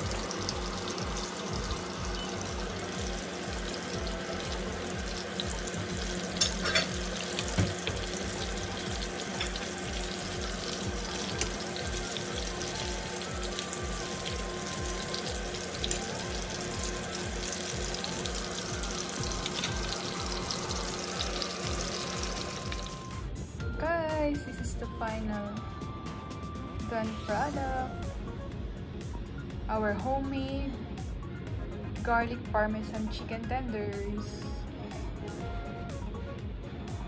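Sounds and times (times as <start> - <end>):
chicken sizzling in hot oil: 0.0 - 23.2
background music with steady beat: 0.0 - 37.0.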